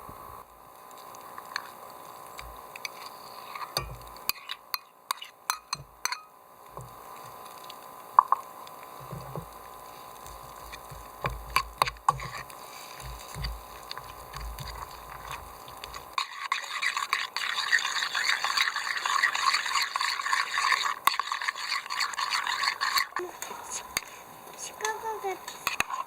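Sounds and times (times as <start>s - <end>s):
rapid scraping or scrubbing: 9.0s - 26.0s.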